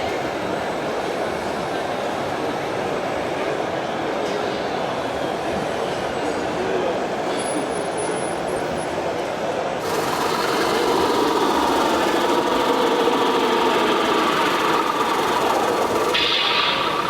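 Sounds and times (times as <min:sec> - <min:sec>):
model truck motors whirring: 0:09.8 - 0:17.0.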